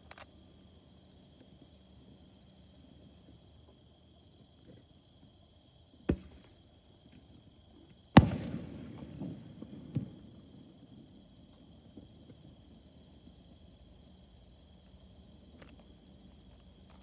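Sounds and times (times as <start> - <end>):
crickets trilling: 0.0 - 17.0
fireworks exploding: 8.2 - 11.1.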